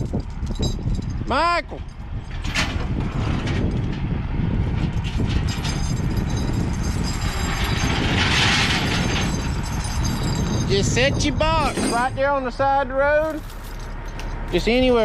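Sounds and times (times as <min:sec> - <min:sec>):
diesel machinery rumbling: 0:00.0 - 0:15.0
metallic rattling: 0:04.7 - 0:12.4, 0:13.2 - 0:14.8.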